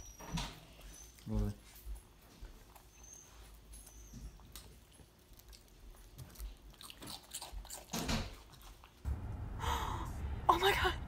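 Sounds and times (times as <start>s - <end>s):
chewing a sandwich: 0.8s - 9.1s.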